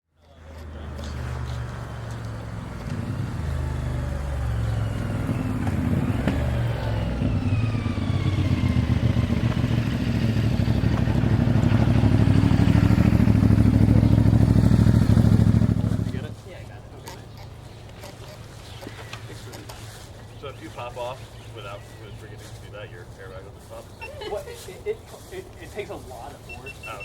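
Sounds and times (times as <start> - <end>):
motorcycle engine running: 0.6 - 16.4.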